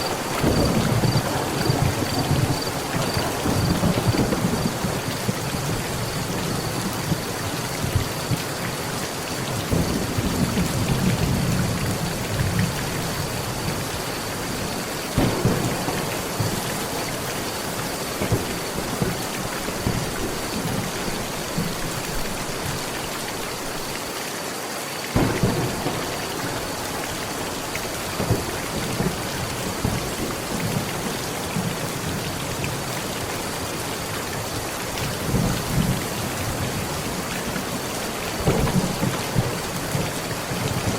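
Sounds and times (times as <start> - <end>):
sharp thunderclaps: 0.0 - 8.4, 15.2 - 17.4, 25.2 - 27.0, 38.4 - 40.9
thunder rumbling: 0.0 - 8.4, 15.2 - 22.8, 25.2 - 32.7, 34.5 - 40.9
heavy rain on a metal roof: 0.0 - 40.9.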